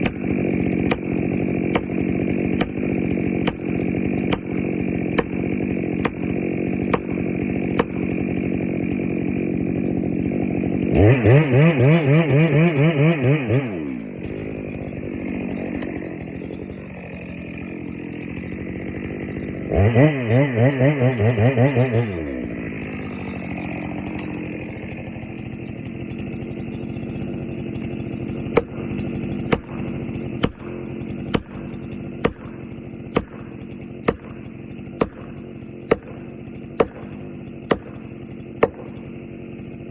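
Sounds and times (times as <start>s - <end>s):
chainsaw revving: 0.0s - 39.9s
sharp knocks: 33.2s - 38.0s.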